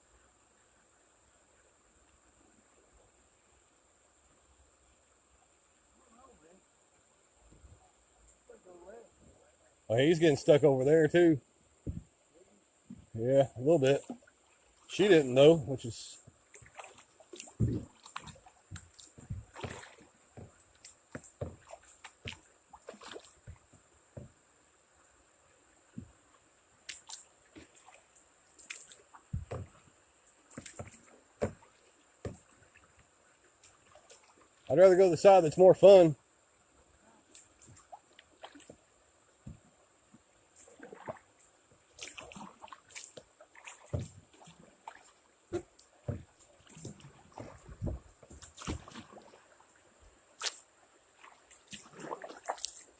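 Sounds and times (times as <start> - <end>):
paddle splashes: 7.4 - 52.9
dull knocks: 11.8 - 12.1, 18.7 - 19.8, 20.4 - 21.7, 29.3 - 29.8, 45.5 - 46.3
paddle knocking against kayak: 11.8 - 12.1, 16.2 - 24.4, 25.9 - 26.2, 29.2 - 32.7, 39.4 - 39.7, 43.0 - 44.4, 45.5 - 49.1.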